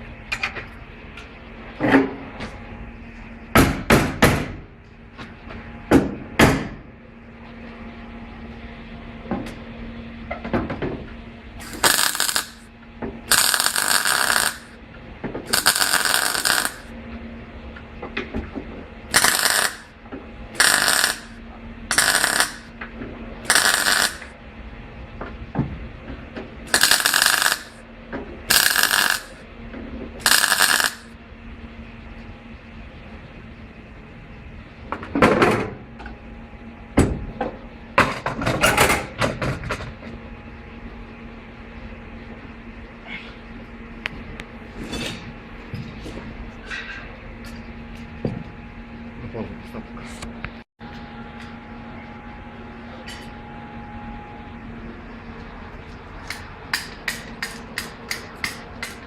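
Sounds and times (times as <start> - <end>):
low hum: 11.3 - 34.0
pneumatic impact wrench bursts: 11.6 - 12.6, 13.3 - 14.7, 15.5 - 16.9, 19.1 - 19.9, 20.6 - 22.7, 23.5 - 24.3, 26.7 - 27.8, 28.5 - 29.4, 30.2 - 31.1.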